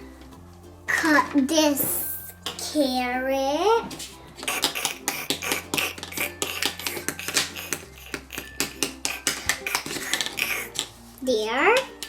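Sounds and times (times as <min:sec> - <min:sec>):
toy knife tapping on plastic: 0:04.4 - 0:10.9.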